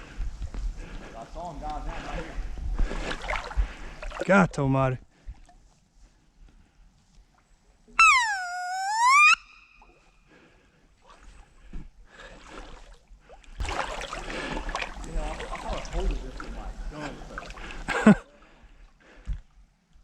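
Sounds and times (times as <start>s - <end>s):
water splashing: 2.8s - 4.3s, 12.2s - 18.2s
loud high whistled call: 8.0s - 10.0s.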